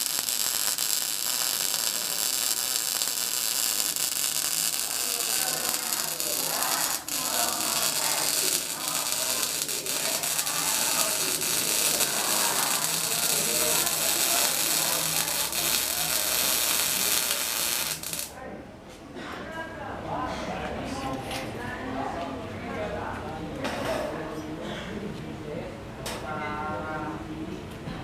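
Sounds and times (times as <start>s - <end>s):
arc welding crackling hiss: 0.0s - 18.4s.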